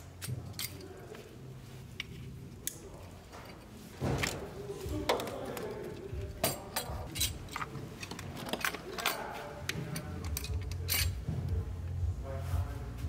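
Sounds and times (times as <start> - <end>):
tools clinking on metal fittings: 0.1 - 1.1, 5.1 - 11.3.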